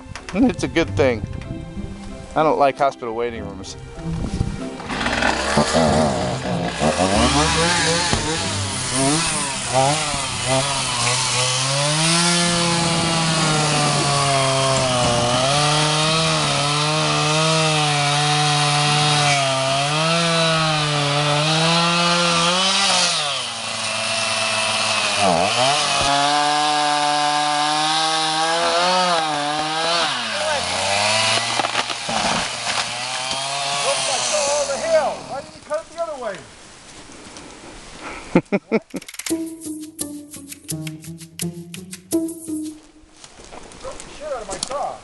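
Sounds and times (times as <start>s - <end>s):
chainsaw cutting tree limb: 4.8s - 35.6s.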